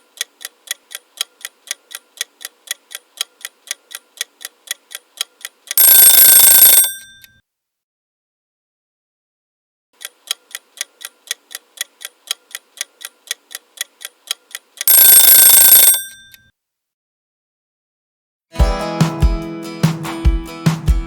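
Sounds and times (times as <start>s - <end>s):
kitchen timer ticking: 0.0s - 7.3s, 10.0s - 16.3s
timer bell ringing: 5.8s - 7.2s, 14.9s - 16.3s.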